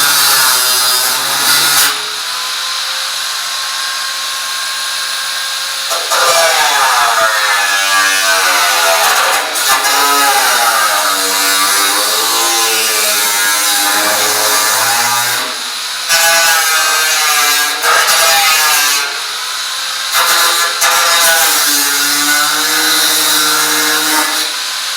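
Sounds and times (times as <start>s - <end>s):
power drill whining: 13.6s - 16.1s.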